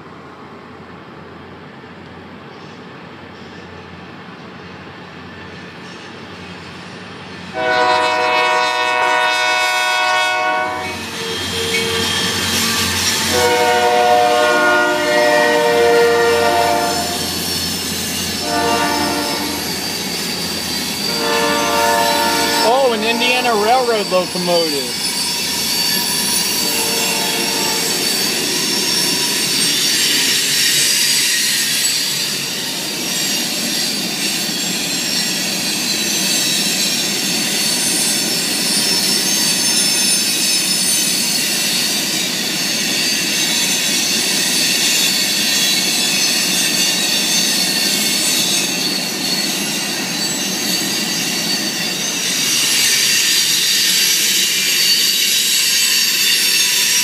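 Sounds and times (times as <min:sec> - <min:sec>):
steel wheels rumbling on rails: 0:10.1 - 0:57.0
metallic wheel squeal: 0:11.0 - 0:13.7, 0:16.9 - 0:22.8, 0:24.9 - 0:36.9, 0:38.7 - 0:57.0.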